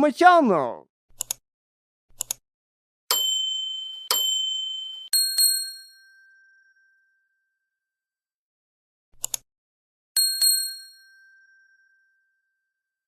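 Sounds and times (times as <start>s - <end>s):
quick clicks: 1.1s - 1.4s, 2.2s - 2.4s, 9.2s - 9.4s
two-stroke chime ding: 3.1s - 7.3s.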